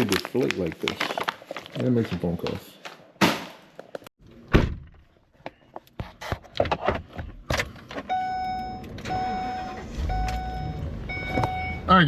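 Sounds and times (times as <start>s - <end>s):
vehicle warning chime beeping: 8.1s - 12.0s.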